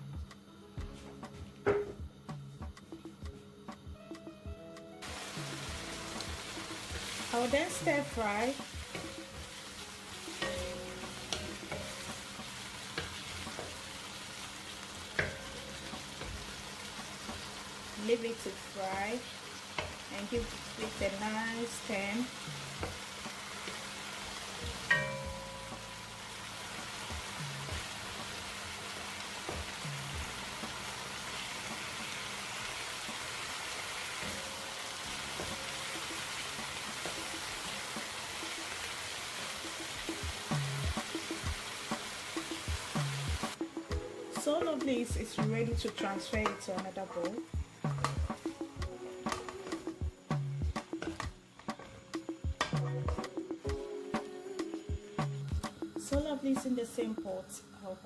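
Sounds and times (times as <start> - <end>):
chicken sizzling in oil: 5.0 - 51.3.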